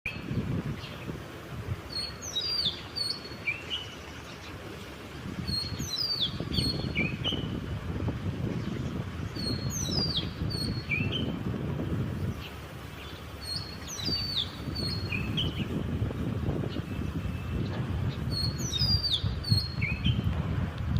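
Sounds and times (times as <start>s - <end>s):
songbird whistled song: 1.9s - 4.6s, 5.4s - 7.6s, 8.6s - 11.4s, 12.2s - 15.8s, 16.6s - 20.3s.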